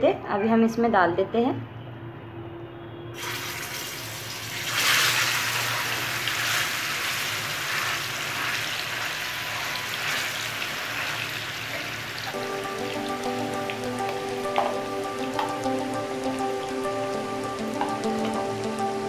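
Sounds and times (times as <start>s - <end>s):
chicken sizzling in hot oil: 3.2s - 13.8s.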